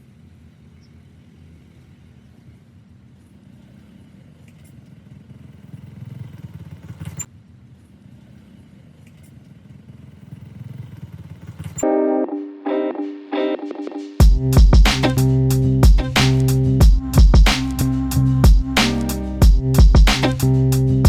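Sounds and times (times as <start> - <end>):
low motor rumble: 14.2 - 21.0.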